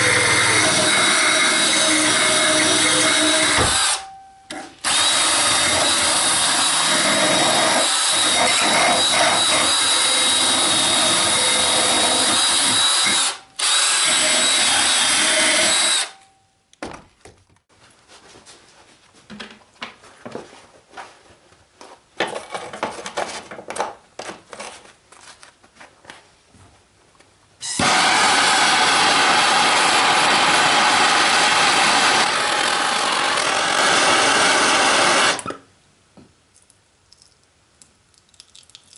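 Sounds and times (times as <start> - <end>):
power tool whining: 0.0 - 4.1, 4.8 - 16.2, 27.6 - 35.5.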